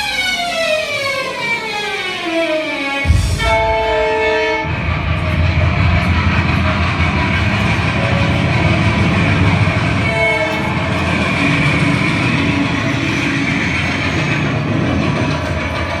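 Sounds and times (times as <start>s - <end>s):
passing train rumble: 0.0s - 16.0s
train horn chord: 2.5s - 13.0s.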